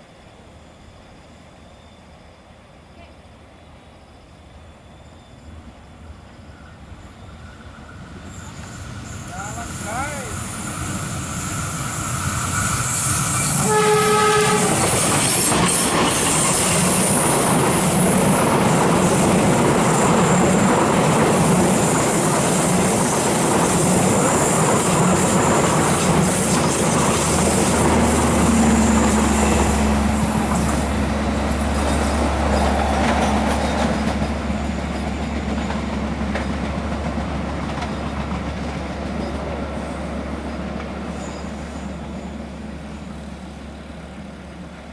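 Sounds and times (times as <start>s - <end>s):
train wheels rumbling on rail: 4.5s - 44.9s
train horn: 13.4s - 15.1s.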